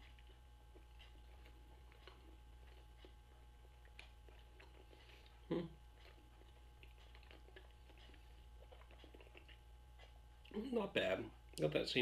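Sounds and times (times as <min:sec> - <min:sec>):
mouth clicks while chewing: 0:00.0 - 0:10.6.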